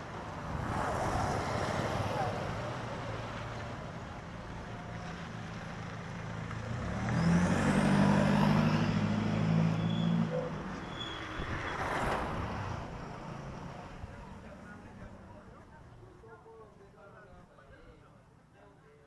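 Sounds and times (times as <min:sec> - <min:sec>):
road traffic noise: 0:00.0 - 0:19.0
vehicle driving past: 0:05.0 - 0:15.2.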